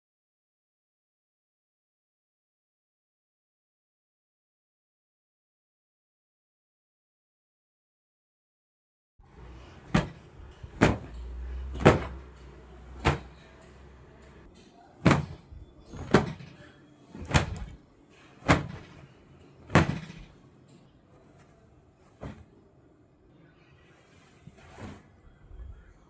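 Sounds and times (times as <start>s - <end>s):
sharp knocks: 9.9s - 11.2s.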